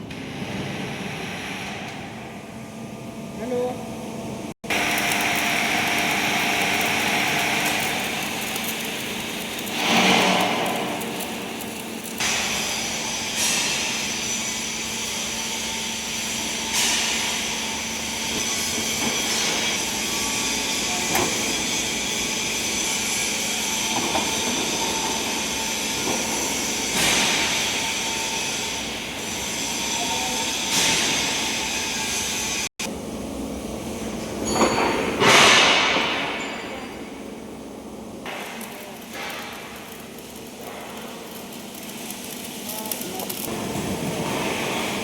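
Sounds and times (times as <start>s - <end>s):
industrial machine humming: 0.0s - 45.0s.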